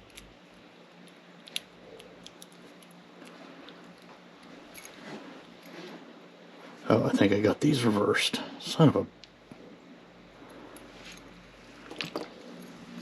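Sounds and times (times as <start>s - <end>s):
small metallic clicks: 0.9s - 3.4s.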